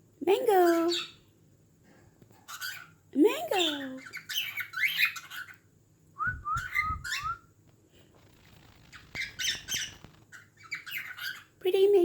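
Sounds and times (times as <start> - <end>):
cockatiel harsh chirps: 4.0 - 5.6, 8.7 - 11.5
cockatiel whistling: 6.2 - 7.5.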